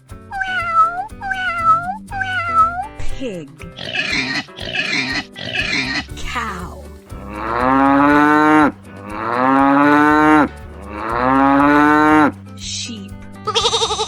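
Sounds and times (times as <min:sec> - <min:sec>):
cow mooing: 0:07.1 - 0:12.3.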